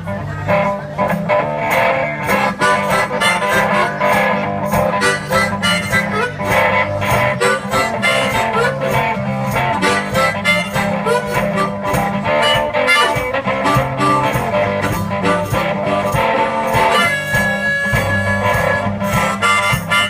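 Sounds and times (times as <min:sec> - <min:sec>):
blues guitar and bass: 0:00.0 - 0:20.0
blues harmonica bending notes: 0:00.0 - 0:20.0.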